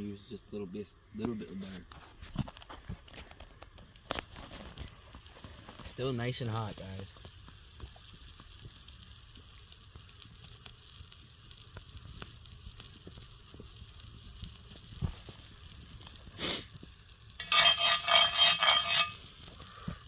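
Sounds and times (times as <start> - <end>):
butter sizzling in a pan: 4.2 - 20.0.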